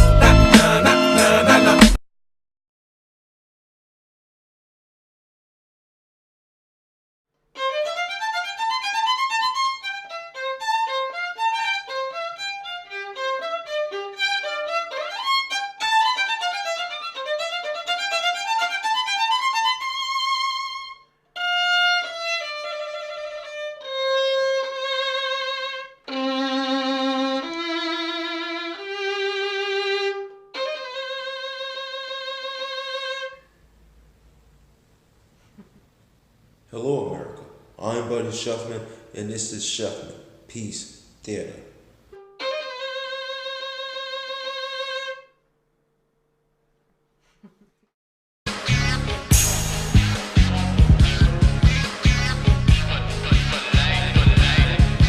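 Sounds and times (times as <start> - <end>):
violin playing: 0.0 - 1.8, 7.5 - 33.5, 42.1 - 45.4.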